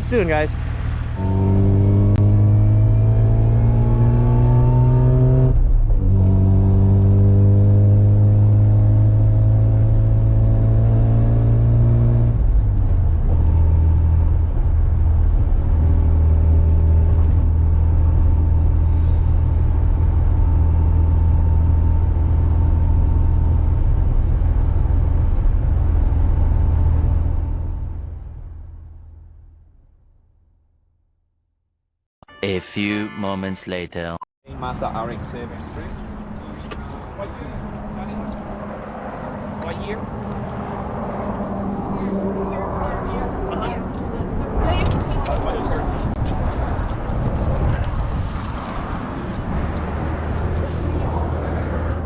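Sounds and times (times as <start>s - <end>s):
car engine accelerating: 0.0s - 29.4s, 34.9s - 52.0s.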